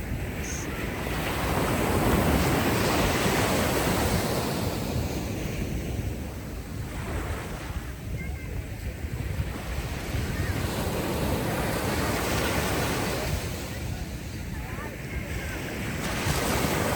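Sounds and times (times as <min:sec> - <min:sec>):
ocean wave breaking: 0:00.0 - 0:08.5
steady surf: 0:00.0 - 0:16.9.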